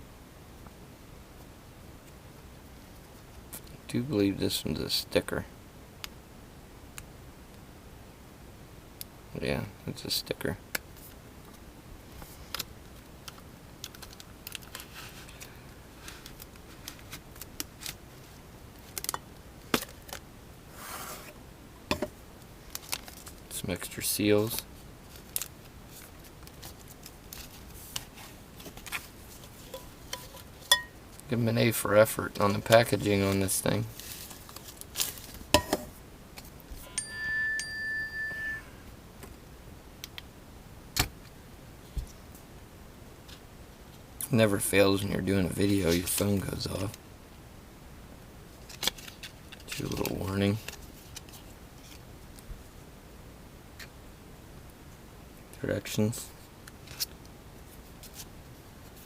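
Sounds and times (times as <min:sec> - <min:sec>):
packaging rustling: 0:33.9 - 0:35.5
phone alert chime: 0:36.8 - 0:38.8.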